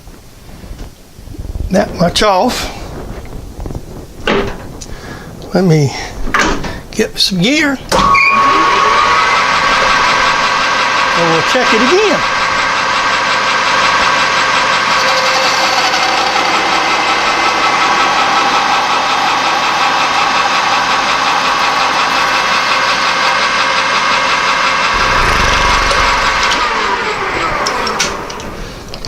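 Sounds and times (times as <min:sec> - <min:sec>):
metal lathe whining: 0:12.8 - 0:28.4.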